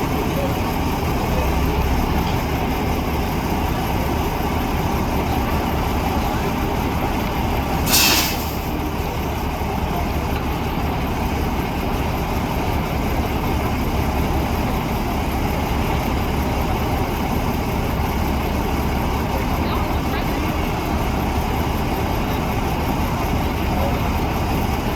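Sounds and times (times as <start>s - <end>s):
diesel truck engine running: 0.0s - 24.9s
air brake hiss: 7.8s - 8.8s.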